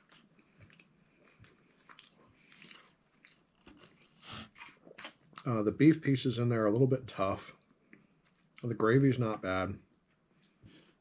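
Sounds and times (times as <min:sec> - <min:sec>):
mouth crunches and clicks: 0:00.0 - 0:05.5
person chewing food: 0:00.0 - 0:05.5, 0:10.0 - 0:11.0.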